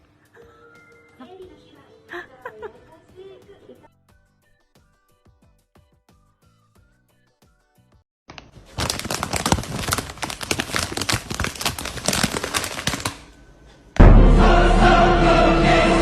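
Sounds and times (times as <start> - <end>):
dense crackling clicks: 8.3 - 13.3
loud music: 14.0 - 16.0.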